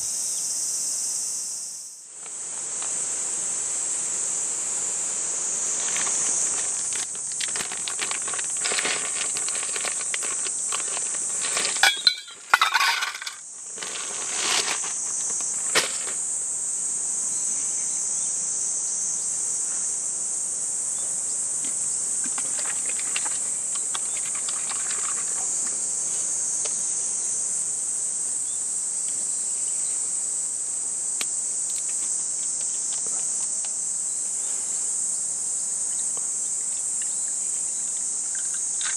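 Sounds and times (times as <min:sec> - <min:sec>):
insects droning: 0:00.0 - 0:38.9
clinks and knocks: 0:11.6 - 0:13.4.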